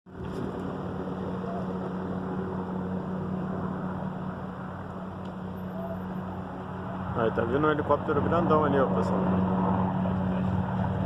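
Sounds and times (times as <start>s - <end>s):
helicopter droning: 0.1s - 11.0s.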